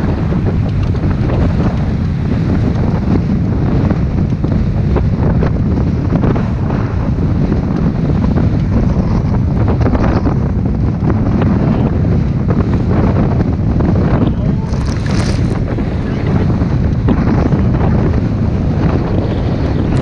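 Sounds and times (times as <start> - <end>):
boat engine running: 0.0 - 20.0
wind buffeting microphone: 0.0 - 20.0
water noise: 8.4 - 20.0.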